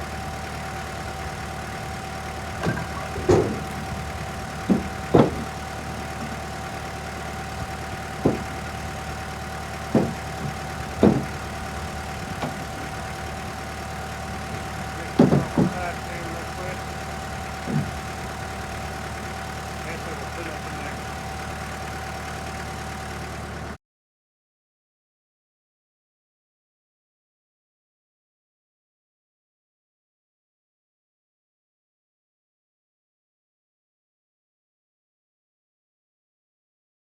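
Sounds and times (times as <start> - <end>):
engine idling: 0.0 - 23.8
firewood pieces knocking: 2.4 - 18.6.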